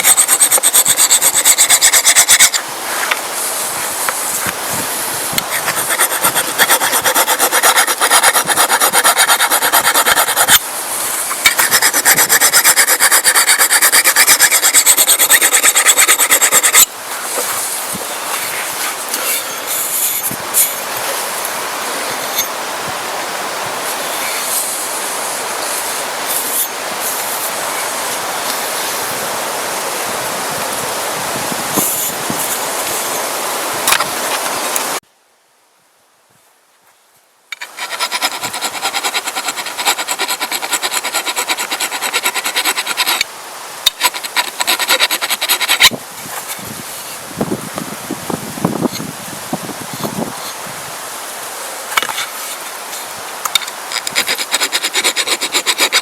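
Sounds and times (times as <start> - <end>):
metal file rasping on steel: 0.0 - 2.6, 5.4 - 16.9, 37.6 - 43.3, 43.9 - 45.9, 53.9 - 56.0
steady rushing noise: 0.0 - 35.0.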